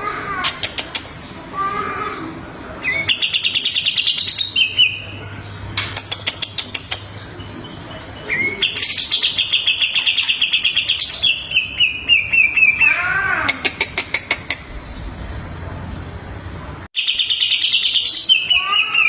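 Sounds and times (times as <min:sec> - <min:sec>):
sharp clicking bird calls: 0:00.4 - 0:01.2, 0:05.8 - 0:07.4.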